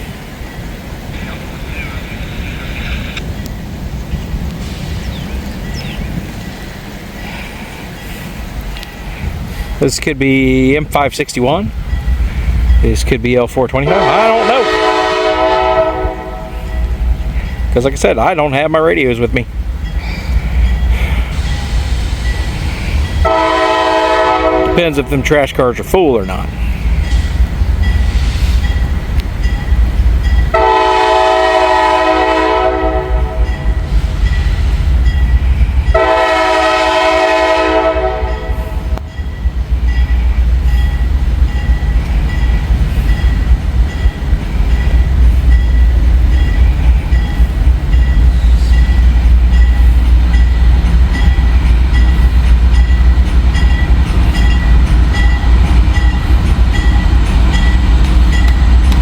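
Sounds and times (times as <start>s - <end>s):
freight train rumbling past: 0.0s - 59.0s
train air horn blasts: 13.8s - 16.8s, 23.2s - 25.1s, 30.5s - 33.8s, 35.9s - 39.0s.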